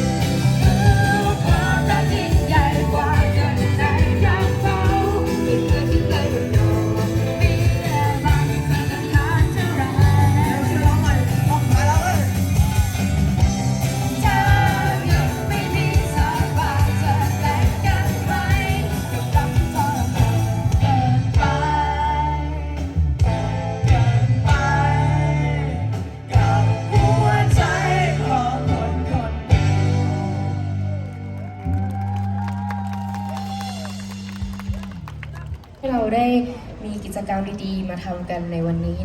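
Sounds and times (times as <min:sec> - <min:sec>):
person singing lead melody: 0:00.0 - 0:13.0, 0:13.8 - 0:30.6
bass guitar: 0:00.0 - 0:35.8
drums: 0:00.0 - 0:35.8.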